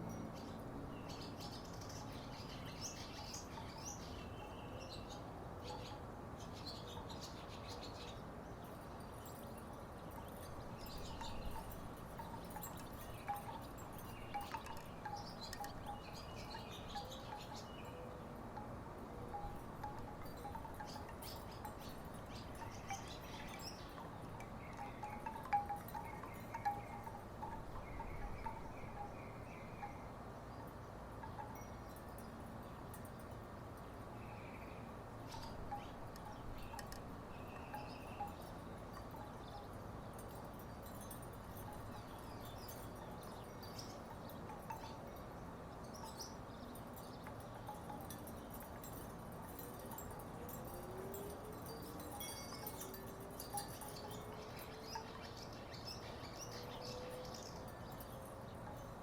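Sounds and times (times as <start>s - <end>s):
wooden wind chimes knocking: 10.2s - 17.8s, 19.3s - 29.1s, 46.0s - 55.4s.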